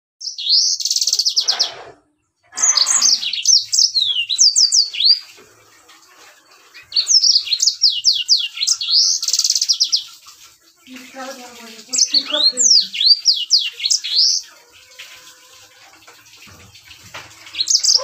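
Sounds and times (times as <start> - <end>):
canary singing: 0.2 - 5.3, 6.7 - 10.2, 11.0 - 14.8, 17.4 - 18.0.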